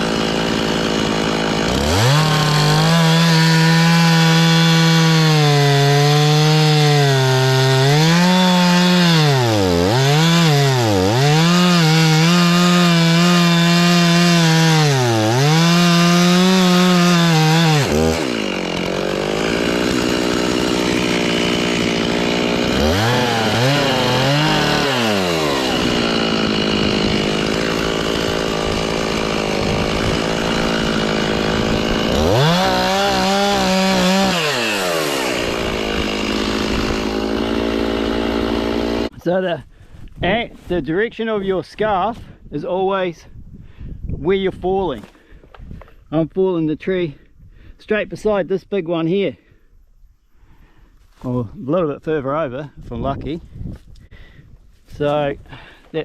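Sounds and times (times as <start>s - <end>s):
chainsaw cutting tree trunk: 0.0s - 39.2s.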